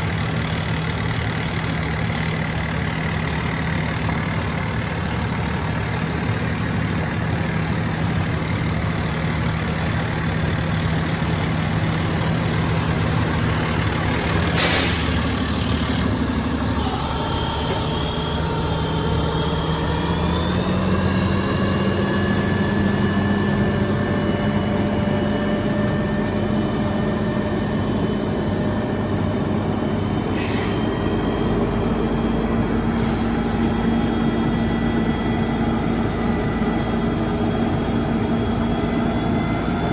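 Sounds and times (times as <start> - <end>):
diesel truck engine idling: 0.0 - 39.9
air release hiss: 14.5 - 15.3.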